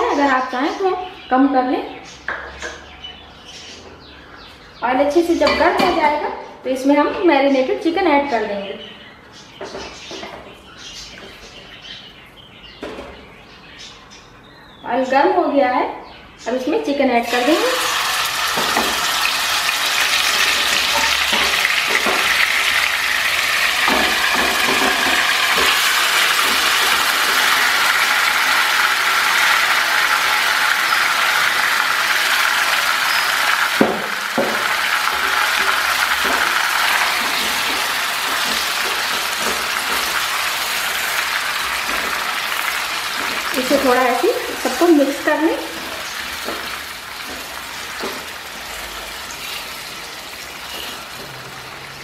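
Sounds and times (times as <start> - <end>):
chicken sizzling in hot oil: 17.2 - 52.0
spatula knocking on pot: 20.4 - 22.8, 23.7 - 27.3.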